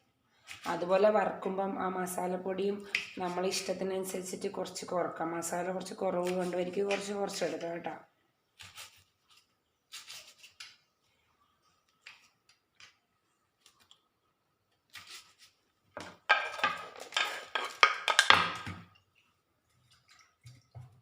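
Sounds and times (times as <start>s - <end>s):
metal dishes and spoons clattering: 16.2s - 18.7s.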